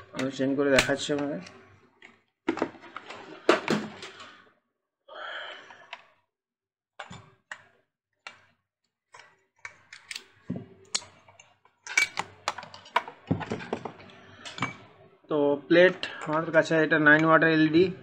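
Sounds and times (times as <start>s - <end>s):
tools clicking and tapping: 10.9s - 13.8s.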